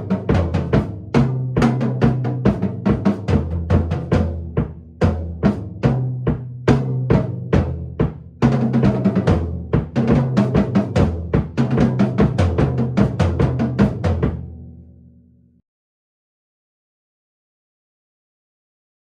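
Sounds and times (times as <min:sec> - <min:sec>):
drum kit being played: 0:00.0 - 0:14.6.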